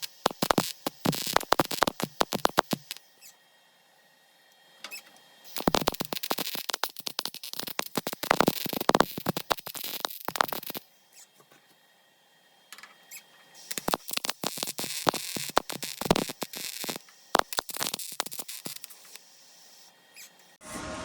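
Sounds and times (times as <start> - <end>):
welding arc crackling: 0.0 - 3.1, 5.5 - 10.9, 13.6 - 20.5
welder popping: 0.0 - 3.3, 4.9 - 10.9, 12.8 - 20.6.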